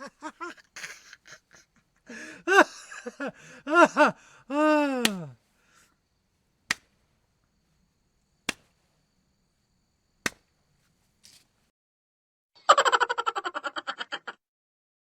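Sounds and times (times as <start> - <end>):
sharp cracks: 5.0 - 5.9, 6.6 - 7.2, 8.4 - 9.0, 10.2 - 11.4.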